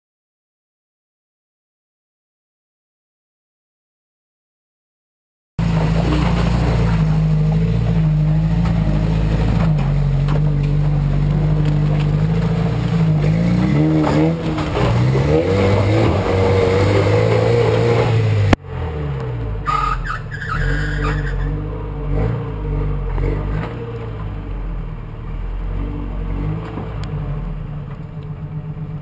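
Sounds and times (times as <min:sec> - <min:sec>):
off-road vehicle engine revving: 0:05.6 - 0:29.0.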